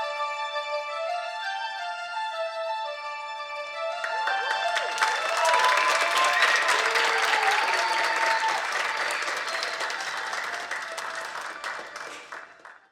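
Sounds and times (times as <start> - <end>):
audience applauding: 4.0 - 12.9
high voices whooping: 4.6 - 11.8.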